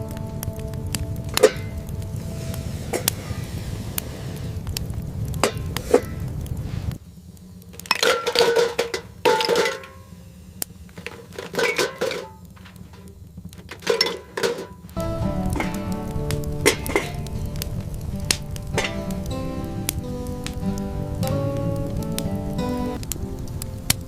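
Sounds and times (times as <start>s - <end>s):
low steady rumble: 0.0s - 24.0s
hard objects clinking and knocking: 7.8s - 10.1s, 11.0s - 14.9s.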